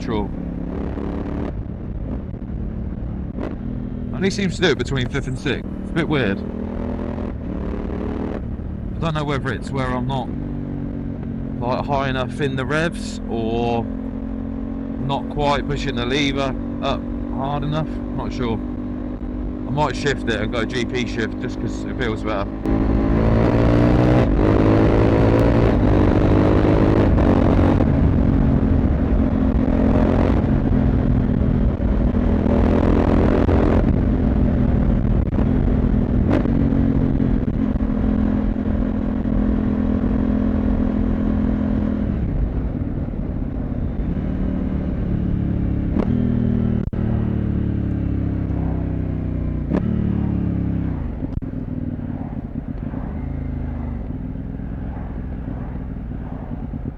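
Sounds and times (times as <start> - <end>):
motorcycle engine and exhaust: 0.0 - 56.9.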